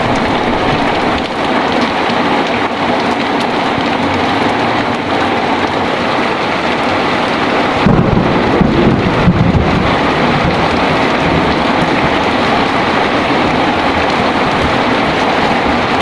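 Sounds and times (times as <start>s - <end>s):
thunderclap: 0.0s - 2.2s, 6.8s - 16.0s
heavy rain pouring: 0.0s - 16.0s.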